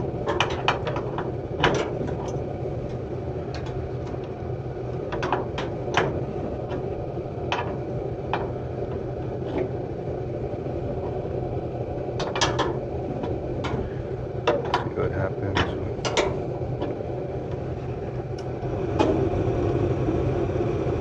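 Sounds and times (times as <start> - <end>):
furnace humming: 0.0 - 21.0.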